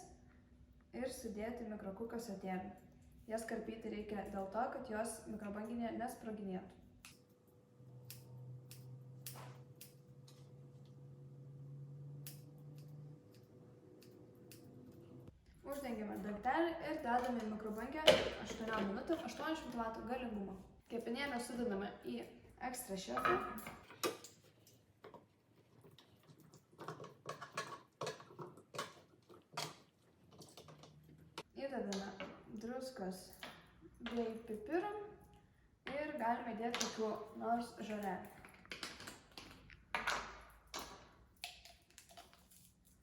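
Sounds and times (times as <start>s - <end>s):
kitchenware clicking and scraping: 15.8s - 20.1s, 22.9s - 32.5s.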